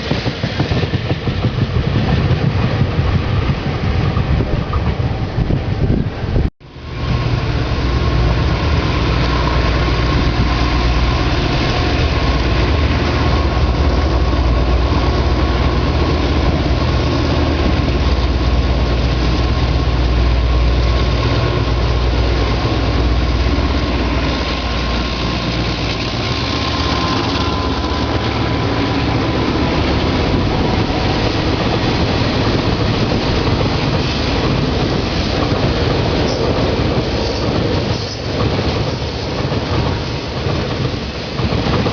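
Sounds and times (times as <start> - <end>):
locomotive engine rumble: 0.0 - 41.9
freight wagons rolling past: 6.7 - 41.9.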